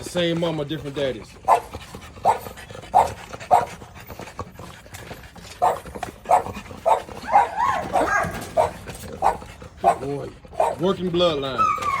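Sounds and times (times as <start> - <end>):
puppy barking: 1.4 - 3.8, 5.6 - 12.0
puppy yelp: 1.5 - 4.0, 5.6 - 12.0.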